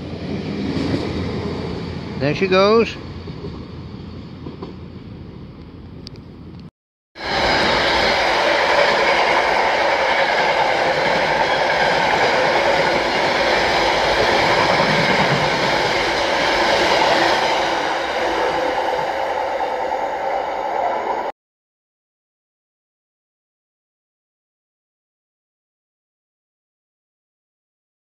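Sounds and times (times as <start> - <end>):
train wheels on rails: 0.0 - 6.6, 7.2 - 21.3.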